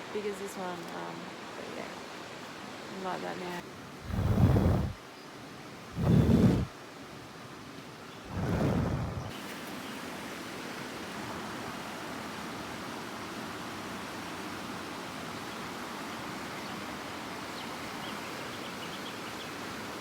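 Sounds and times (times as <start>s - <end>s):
river rushing: 1.3s - 5.0s, 5.9s - 6.8s, 8.2s - 17.4s.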